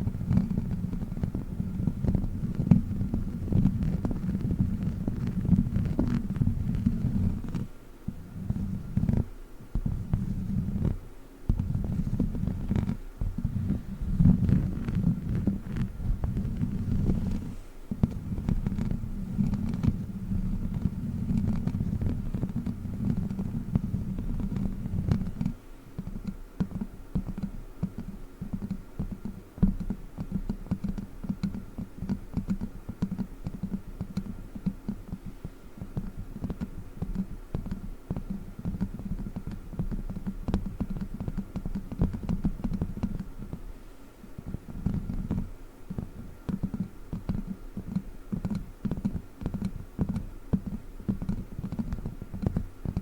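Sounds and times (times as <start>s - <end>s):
low rumble with fast clicks: 0.0s - 53.0s.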